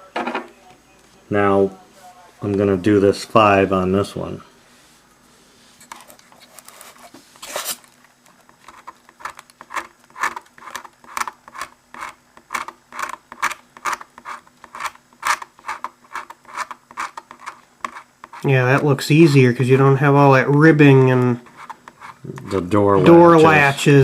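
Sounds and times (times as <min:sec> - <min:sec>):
knife blade scraping plastic: 0:05.9 - 0:07.9, 0:08.6 - 0:18.5.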